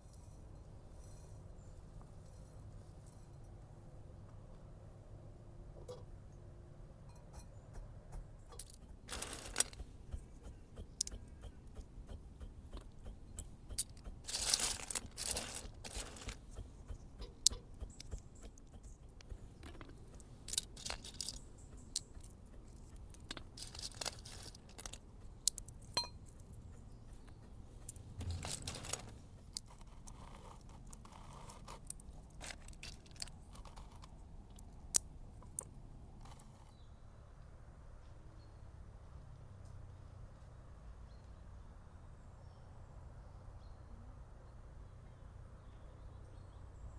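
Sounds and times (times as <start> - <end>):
sharp clicks and scrapes: 7.4 - 36.8
crunching or rustling: 8.6 - 9.9, 13.8 - 16.6, 19.2 - 22.1, 22.7 - 26.0, 27.8 - 34.7.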